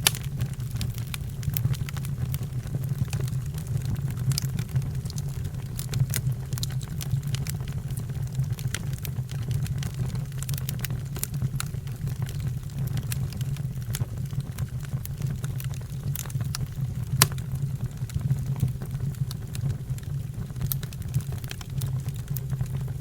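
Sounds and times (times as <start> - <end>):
fire roaring: 0.0 - 14.1, 14.8 - 23.0
fire crackling: 0.0 - 23.0
loud pop: 17.2 - 17.4.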